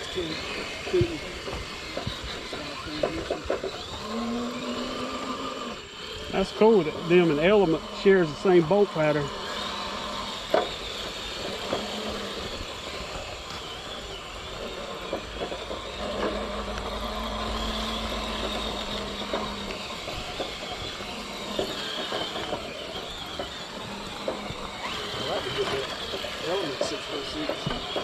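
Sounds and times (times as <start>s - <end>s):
rc truck motors whining: 0.0s - 28.0s
small clicks and knocks: 10.4s - 13.7s, 14.6s - 28.0s.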